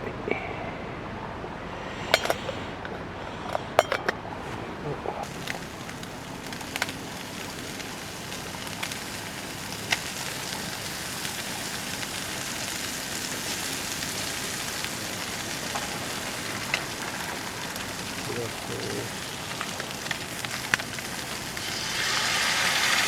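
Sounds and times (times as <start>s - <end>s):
campfire hiss: 0.1s - 23.0s
fire crackling pops: 1.6s - 12.2s.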